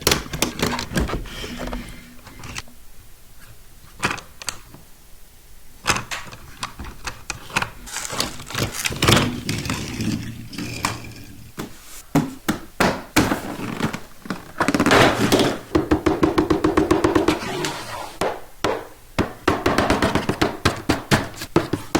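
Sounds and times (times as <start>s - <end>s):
packaging crinkling: 7.8s - 9.4s.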